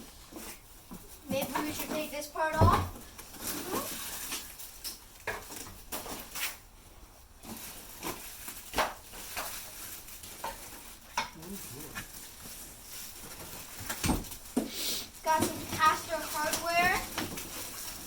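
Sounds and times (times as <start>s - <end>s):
packaging rustling: 3.0s - 6.6s, 7.4s - 18.0s.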